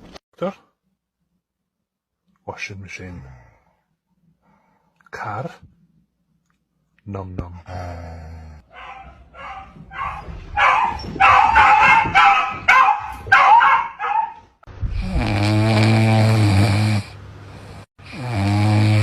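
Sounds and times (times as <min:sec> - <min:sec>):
dog yipping and howling: 0:08.7 - 0:14.5.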